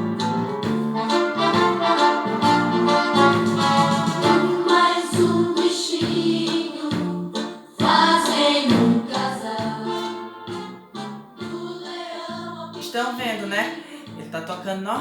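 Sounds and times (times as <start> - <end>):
song with singing voices: 3.6 - 15.0.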